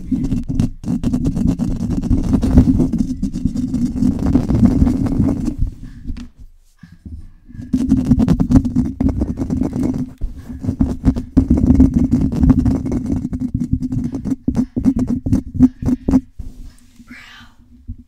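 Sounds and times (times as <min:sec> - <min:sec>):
microphone being scratched: 0:00.0 - 0:06.3, 0:07.5 - 0:18.0.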